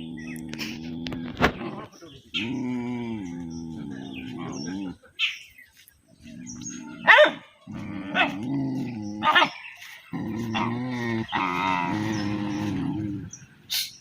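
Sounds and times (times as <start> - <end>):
dog growling: 0.0 - 5.2, 6.2 - 13.6
dog barking: 7.0 - 7.5.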